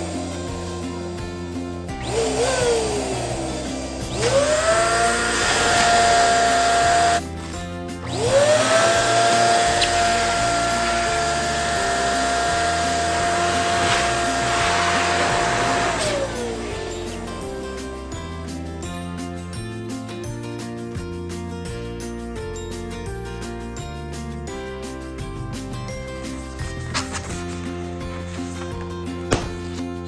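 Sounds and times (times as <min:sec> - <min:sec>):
music: 0:00.0 - 0:30.0
electric pump motor whine: 0:02.0 - 0:17.5.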